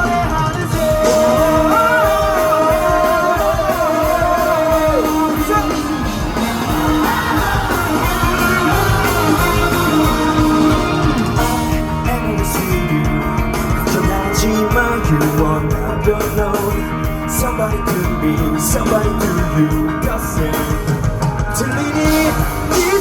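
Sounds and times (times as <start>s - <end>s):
bass: 0.0s - 23.0s
drums: 0.0s - 23.0s
lead guitar bending notes: 0.8s - 18.8s.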